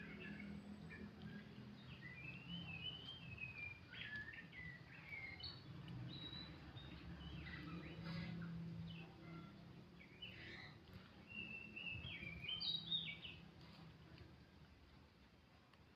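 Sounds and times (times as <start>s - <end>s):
bird singing whistled phrases: 0.0s - 8.0s, 11.3s - 13.4s
low steady hum: 0.0s - 15.9s.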